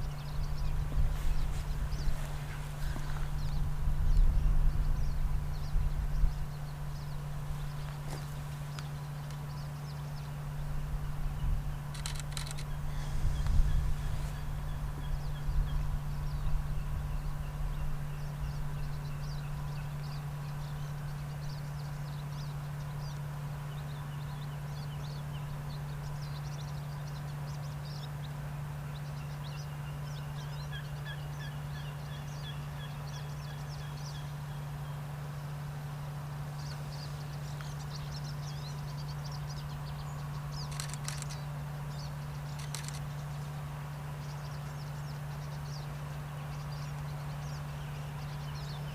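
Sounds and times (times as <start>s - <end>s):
wind rumbling on microphone: 0.0s - 22.2s
small birds chirping: 0.0s - 48.9s
steady low hum: 0.0s - 48.9s.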